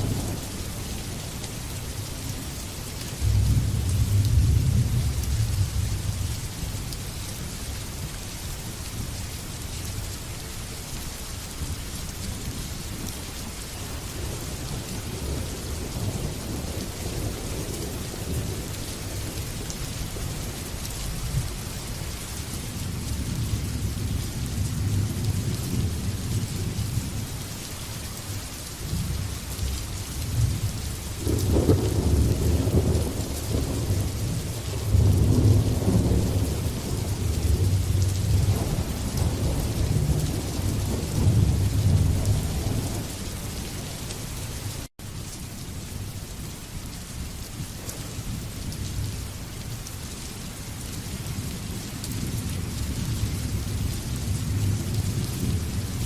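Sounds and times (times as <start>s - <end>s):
steady rain: 0.0s - 56.0s
rolling thunder rumble: 3.2s - 6.8s, 28.8s - 44.3s.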